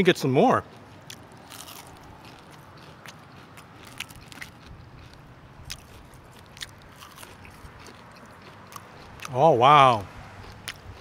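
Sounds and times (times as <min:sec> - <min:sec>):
person chewing crispy food: 0:00.6 - 0:11.0
faint crunches: 0:00.8 - 0:09.3.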